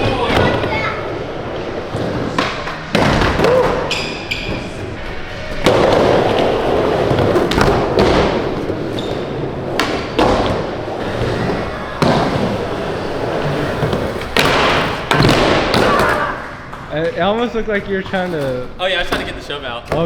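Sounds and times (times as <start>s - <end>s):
skateboard wheels rolling: 0.0s - 16.9s
skateboard thuds: 9.7s - 16.4s.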